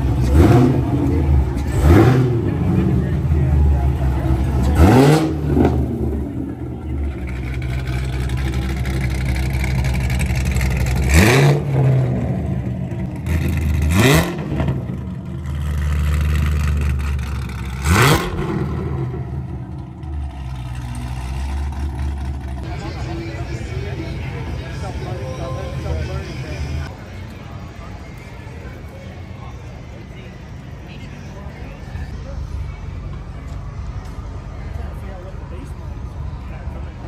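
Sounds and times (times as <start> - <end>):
car engine revving: 0.0 - 26.9.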